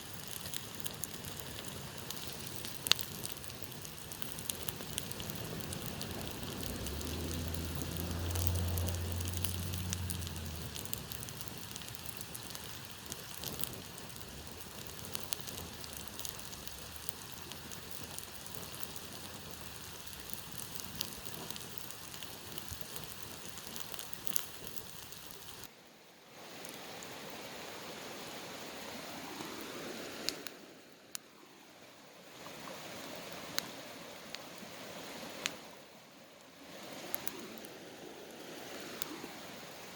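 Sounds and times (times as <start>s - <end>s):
burning wood crackling: 0.0s - 25.7s, 28.1s - 31.3s, 36.4s - 39.9s
campfire hissing: 0.0s - 25.7s, 26.3s - 39.9s
low rumble: 4.4s - 12.6s.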